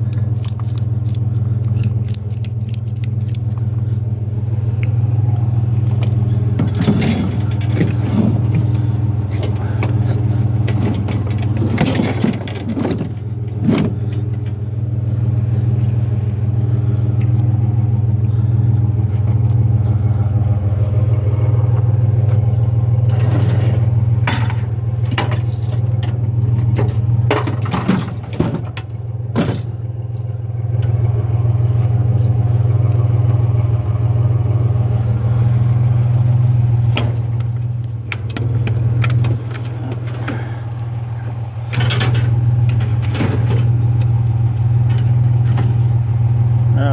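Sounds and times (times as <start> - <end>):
loose metal rattling: 0.0 - 33.4, 35.3 - 46.6
vehicle engine and road noise: 0.0 - 46.9.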